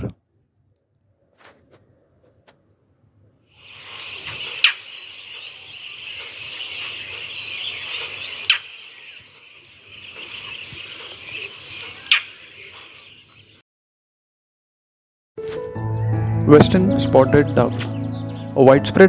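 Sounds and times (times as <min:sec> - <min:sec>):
crickets chirping: 0:03.5 - 0:13.6.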